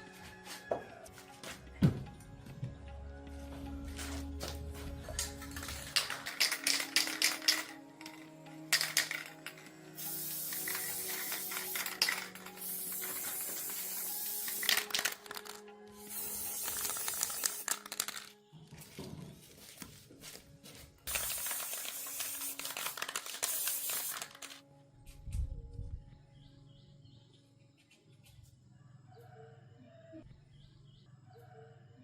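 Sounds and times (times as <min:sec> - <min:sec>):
background music: 0:00.0 - 0:27.9
hissing spray bursts: 0:08.8 - 0:15.4, 0:16.0 - 0:17.9, 0:21.1 - 0:24.5.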